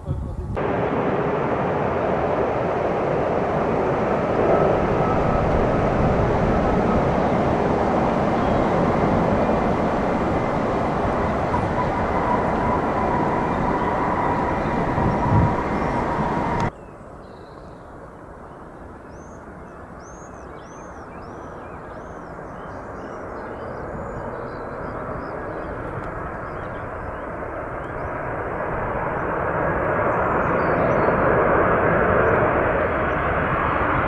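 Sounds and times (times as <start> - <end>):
distant jet rumble: 0.0 - 17.2, 17.9 - 34.0
jet engine noise with whine: 0.0 - 34.0
bird chirping: 11.3 - 28.2.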